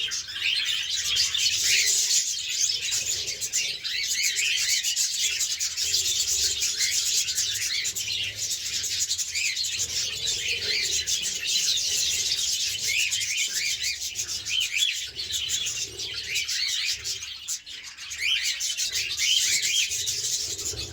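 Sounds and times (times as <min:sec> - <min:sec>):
caged birds chirping and warbling: 0:00.0 - 0:20.9.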